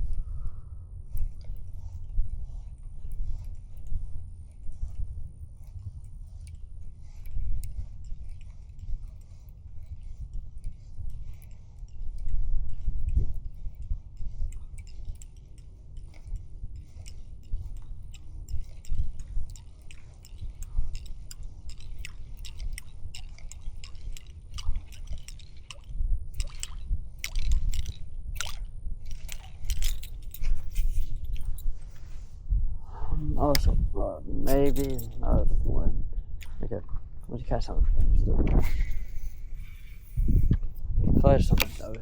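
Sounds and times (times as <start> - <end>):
wind buffeting microphone: 0.0 - 42.0
handling clicks and rustles: 13.1 - 32.2, 34.5 - 35.4, 38.6 - 42.0.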